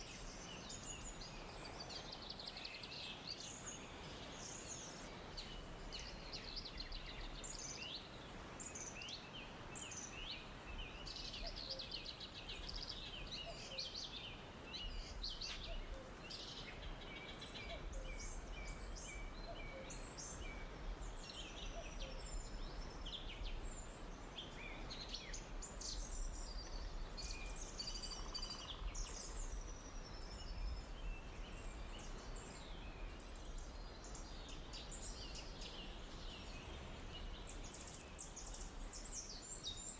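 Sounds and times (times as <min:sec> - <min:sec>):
soft steady hiss: 0:00.0 - 0:39.9
songbirds chirping and whistling: 0:00.0 - 0:39.9.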